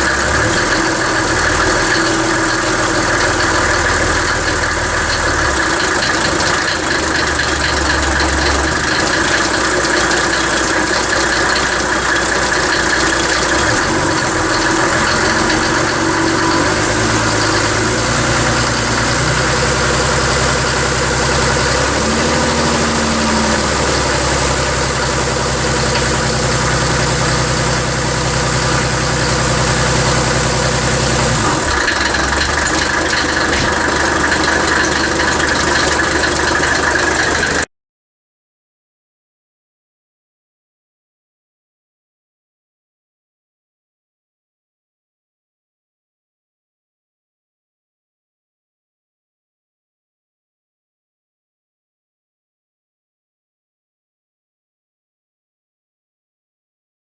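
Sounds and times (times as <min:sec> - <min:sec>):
diesel engine running: 0:00.0 - 0:37.7.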